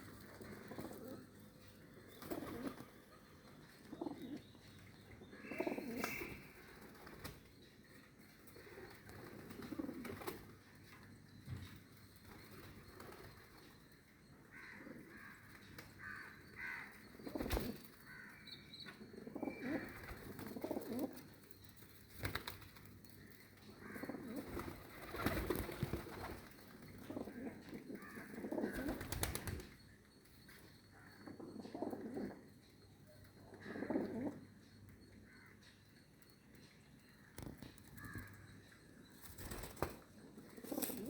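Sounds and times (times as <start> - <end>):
pigeons cooing: 0.0 - 3.1, 3.7 - 4.5, 5.2 - 7.3, 8.5 - 10.5, 19.0 - 21.3, 23.8 - 29.6, 31.0 - 32.5, 33.4 - 34.5, 39.5 - 41.0.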